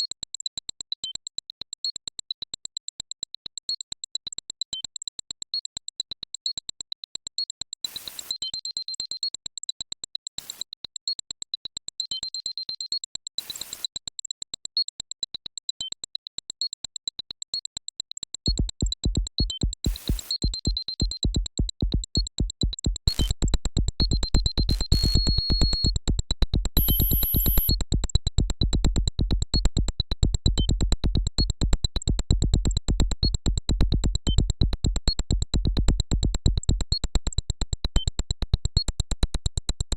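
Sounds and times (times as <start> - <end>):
synthesizer music with bleeping tones: 18.5 - 26.1, 26.8 - 27.9
heavy bass beat: 18.5 - 37.8.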